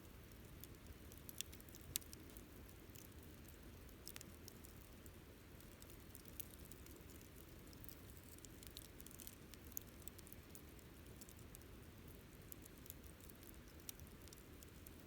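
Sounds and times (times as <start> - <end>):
campfire crackling and popping: 0.5 - 5.0, 5.6 - 11.6.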